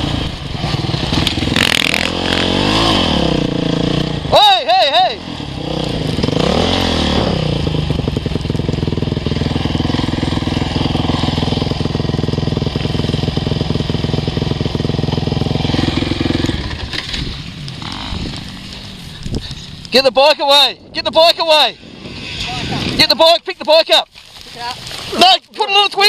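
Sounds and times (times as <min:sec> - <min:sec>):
motocross bike engine idling: 0:07.5 - 0:19.9.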